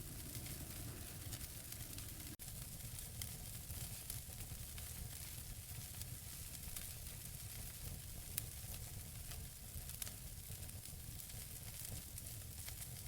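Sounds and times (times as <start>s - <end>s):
fire hissing: 0.0s - 2.4s
logs crackling and popping: 0.0s - 5.0s
low rumble of fire: 0.0s - 13.0s.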